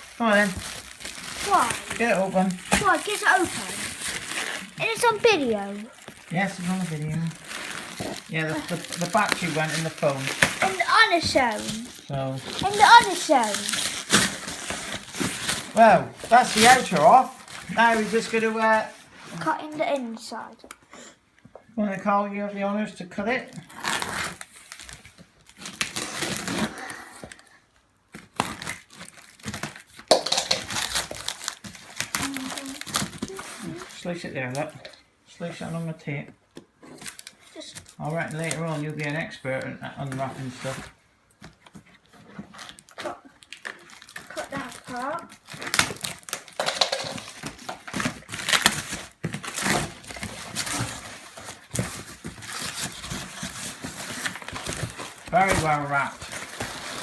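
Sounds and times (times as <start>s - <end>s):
plastic packaging crinkling: 0.0s - 19.0s, 28.1s - 34.7s, 37.0s - 39.2s, 40.0s - 57.0s.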